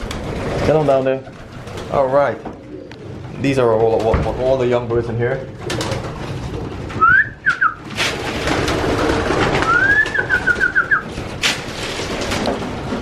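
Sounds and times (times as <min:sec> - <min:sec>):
pigeons cooing: 0:00.0 - 0:04.2, 0:05.5 - 0:13.0
high whistle-like call: 0:07.0 - 0:07.8, 0:09.6 - 0:11.0.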